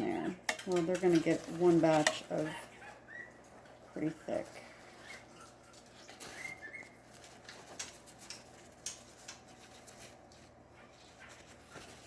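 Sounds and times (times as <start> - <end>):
kitchen clicks and taps: 0.4 - 1.3.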